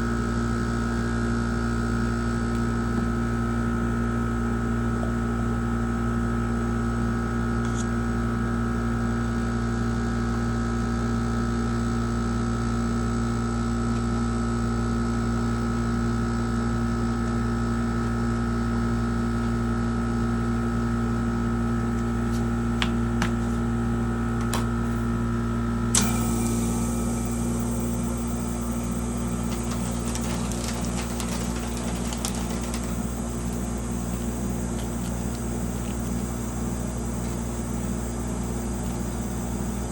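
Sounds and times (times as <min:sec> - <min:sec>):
high whine: 0:21.3 - 0:39.9
small motor humming: 0:25.9 - 0:39.9.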